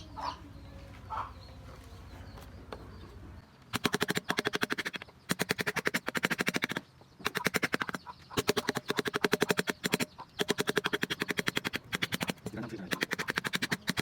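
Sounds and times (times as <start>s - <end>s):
rapid tapping on carving tool: 3.8s - 14.0s.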